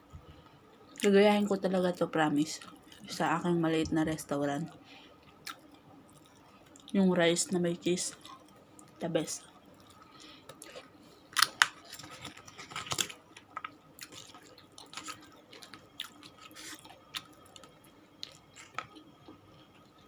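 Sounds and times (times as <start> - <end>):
person chewing food: 5.3 - 6.9, 8.2 - 20.0.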